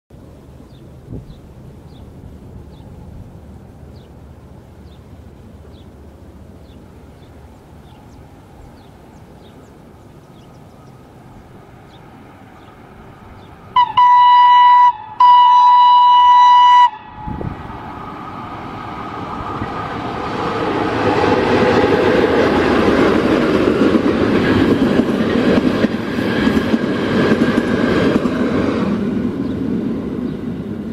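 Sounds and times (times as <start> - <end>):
locomotive horn blast: 13.8 - 17.5
train wheels clattering on rail: 19.4 - 30.9.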